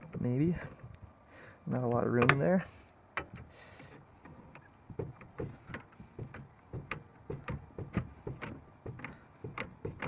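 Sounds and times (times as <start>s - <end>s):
metal fittings clicking and knocking: 3.2s - 10.0s.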